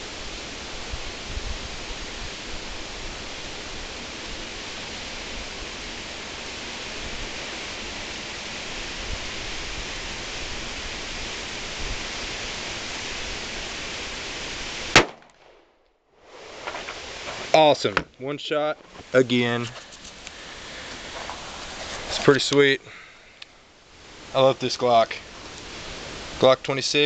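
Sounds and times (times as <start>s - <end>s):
wind rushing over microphone: 0.0s - 15.0s
pistol shot: 14.9s - 15.7s.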